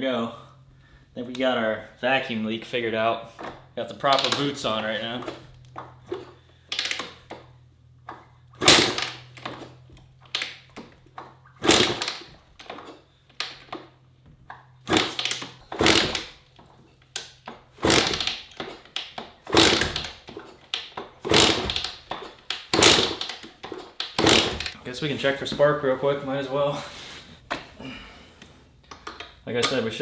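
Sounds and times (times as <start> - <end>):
dirt bike kick-start cranking: 3.3 - 14.0, 14.8 - 24.8.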